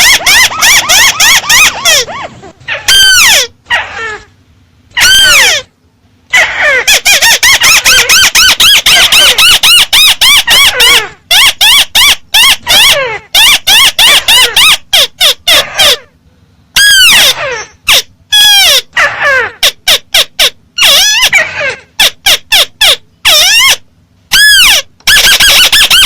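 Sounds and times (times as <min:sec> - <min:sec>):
bird calling with squeaky notes: 0:00.0 - 0:04.2, 0:06.4 - 0:16.0.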